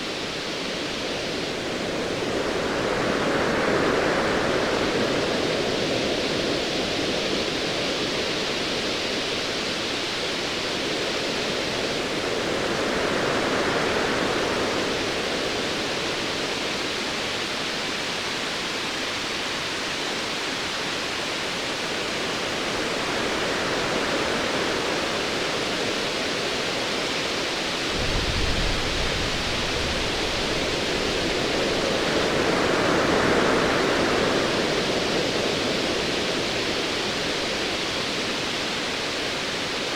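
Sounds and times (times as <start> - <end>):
distant thunder rumble: 28.0 - 31.9.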